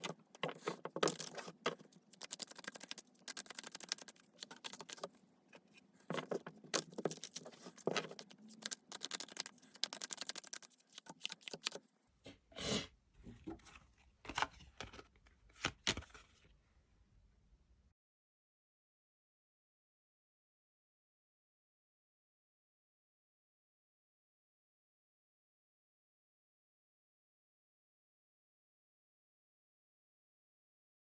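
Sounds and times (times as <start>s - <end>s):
cards being shuffled: 0.0s - 5.1s, 6.1s - 11.8s, 14.3s - 16.4s.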